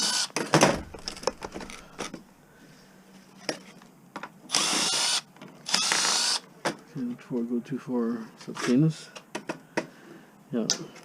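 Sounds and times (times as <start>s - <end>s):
power drill spinning: 4.5s - 6.4s.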